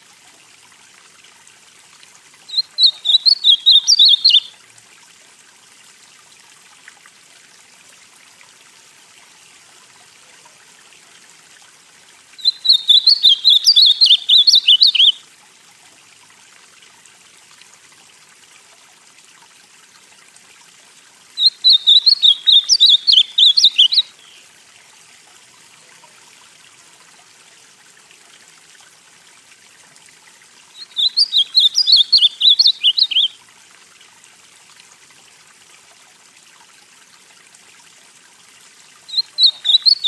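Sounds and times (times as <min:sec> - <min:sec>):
bird singing warbled whistles: 0:02.5 - 0:04.5, 0:12.4 - 0:15.2, 0:21.4 - 0:24.4, 0:30.8 - 0:33.4, 0:39.1 - 0:40.0.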